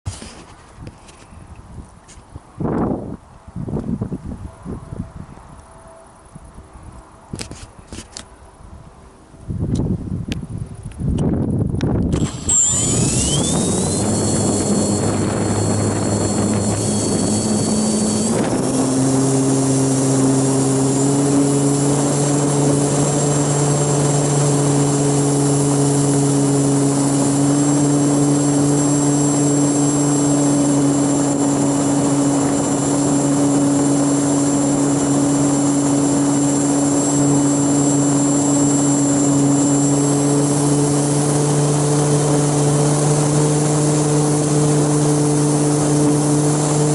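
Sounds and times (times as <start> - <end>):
wind noise: 0.1 - 46.9
high motor whine: 10.4 - 46.9
propeller hum: 10.4 - 46.9.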